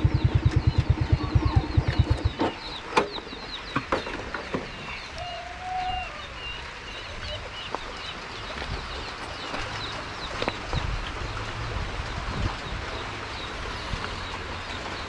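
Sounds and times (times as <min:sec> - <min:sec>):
low rumble: 0:00.0 - 0:02.8
birds chirping: 0:00.0 - 0:11.4.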